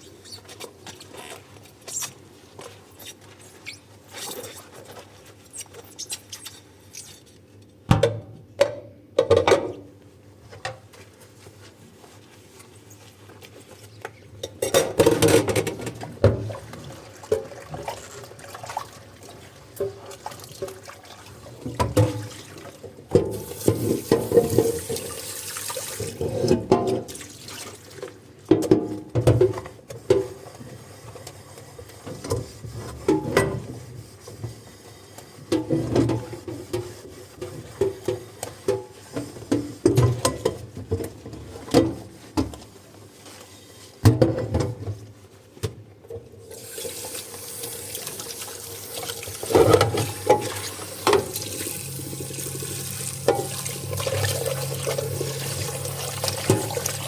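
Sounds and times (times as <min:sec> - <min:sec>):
tap water running: 0:16.4 - 0:27.8, 0:46.5 - 0:57.0.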